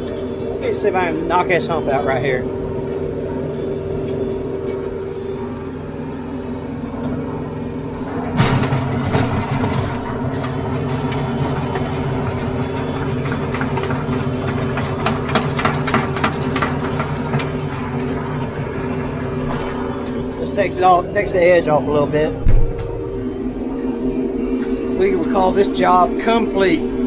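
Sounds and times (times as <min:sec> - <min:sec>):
tractor diesel engine running: 0:00.0 - 0:27.0
tiller churning soil: 0:08.0 - 0:22.2
rapid knocks from stones: 0:08.4 - 0:17.9.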